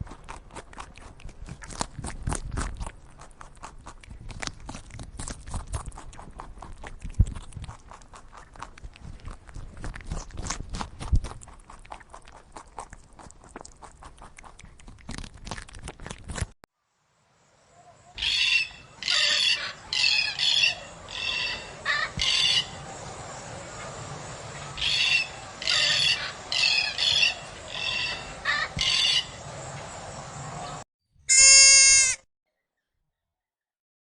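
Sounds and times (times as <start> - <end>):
loud animal bleat: 31.3 - 32.2
short high-pitched animal calls: 31.3 - 32.3.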